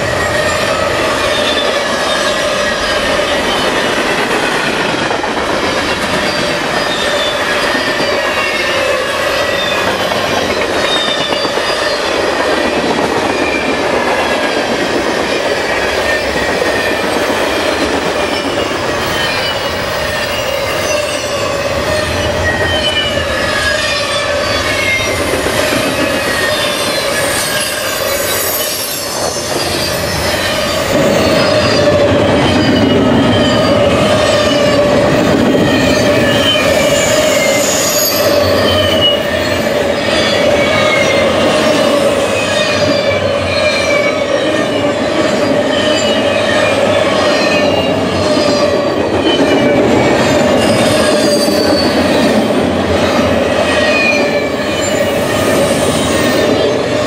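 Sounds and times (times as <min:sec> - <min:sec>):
high wheel squeals: 0:00.0 - 0:04.2, 0:05.8 - 0:12.2, 0:18.2 - 0:52.6, 0:53.2 - 0:57.0
freight train wheels rumbling: 0:00.0 - 0:57.0.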